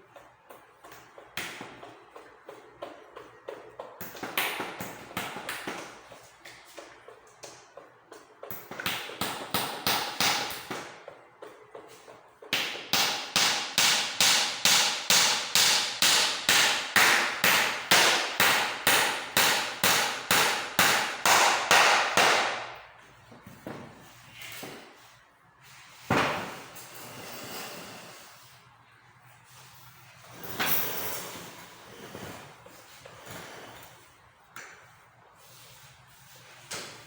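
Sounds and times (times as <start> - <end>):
hammer striking: 12.5 - 22.8.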